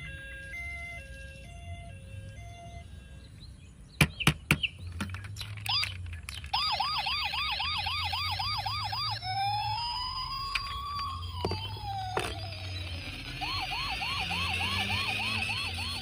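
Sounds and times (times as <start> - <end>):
toy electronic siren: 0.0 - 3.2, 5.6 - 16.0
sharp clicks: 4.0 - 6.8.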